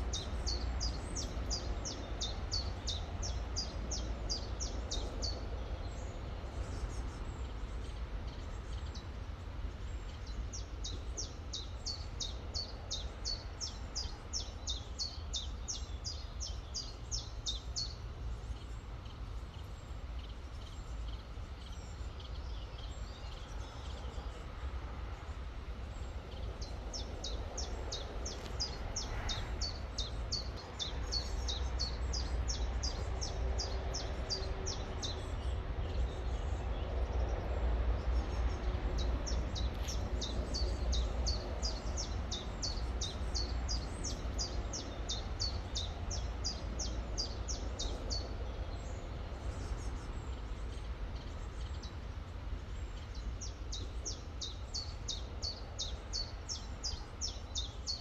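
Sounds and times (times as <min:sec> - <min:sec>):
songbird singing: 0:00.0 - 0:58.0
steady low rumble: 0:16.4 - 0:57.4.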